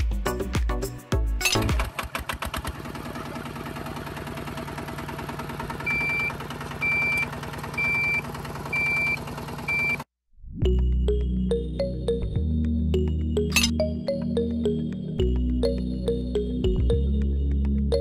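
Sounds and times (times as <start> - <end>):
small motor rattling: 1.5 - 10.0.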